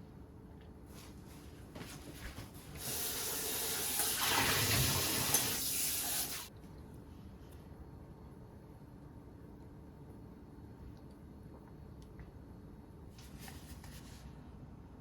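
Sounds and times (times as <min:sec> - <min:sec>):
water splashing into sink: 0:02.8 - 0:06.5.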